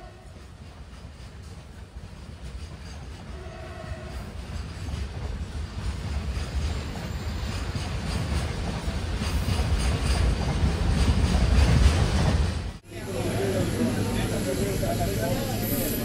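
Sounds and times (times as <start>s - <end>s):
freight train wagons rolling past: 0.0s - 16.0s
train wheels clattering: 0.2s - 3.4s, 4.0s - 12.8s.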